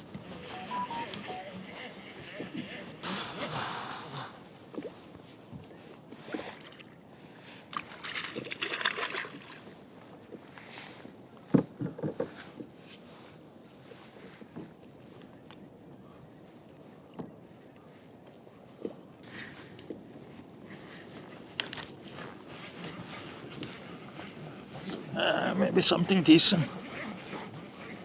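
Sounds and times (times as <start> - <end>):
water splashing against kayak: 7.8 - 9.6.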